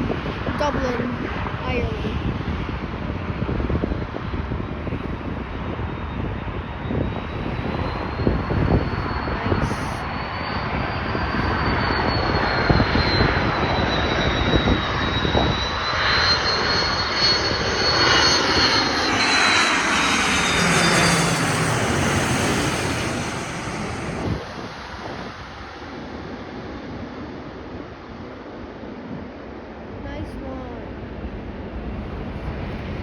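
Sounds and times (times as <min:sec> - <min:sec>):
jet airliner passing overhead: 0:00.0 - 0:33.0.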